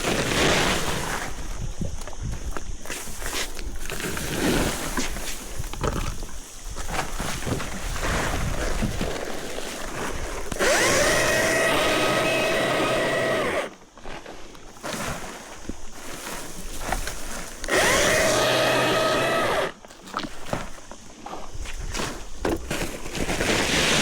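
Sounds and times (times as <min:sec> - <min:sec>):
electric chainsaw motor whining: 0:10.5 - 0:13.8, 0:17.6 - 0:19.8.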